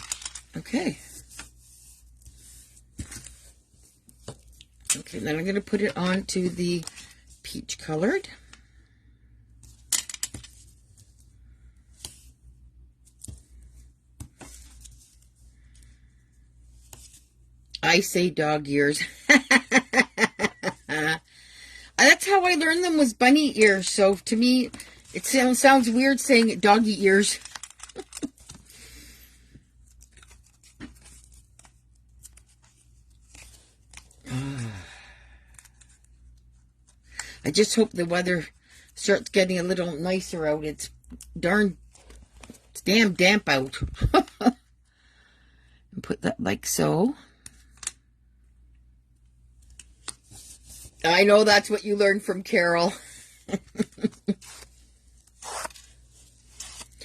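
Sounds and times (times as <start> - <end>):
paper rustling: 0.0 - 7.3, 23.6 - 29.0, 29.8 - 34.2
paper tearing rustle: 24.7 - 28.8, 54.0 - 57.0.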